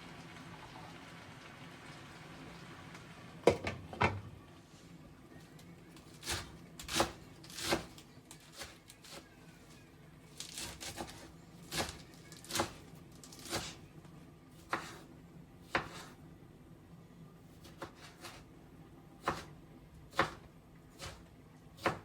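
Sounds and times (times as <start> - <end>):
knife chopping on cutting board: 6.2 - 9.2, 14.6 - 16.2, 17.6 - 18.4, 19.2 - 19.5, 20.1 - 21.2, 21.8 - 22.0.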